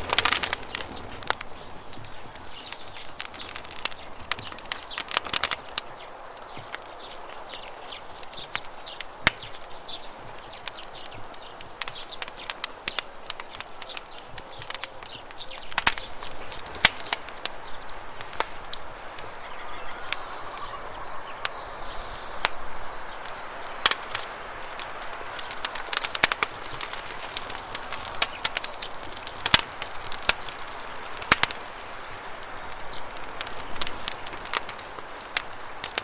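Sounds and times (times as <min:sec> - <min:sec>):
campfire crackling: 0:00.0 - 0:36.0
bird calling: 0:04.4 - 0:29.4.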